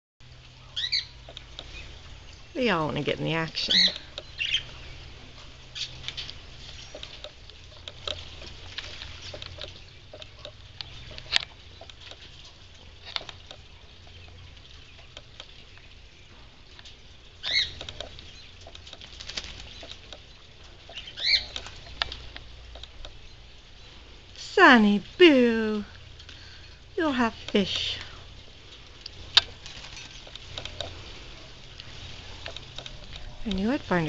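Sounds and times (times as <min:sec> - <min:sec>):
birds splashing in water: 0:16.9 - 0:23.0.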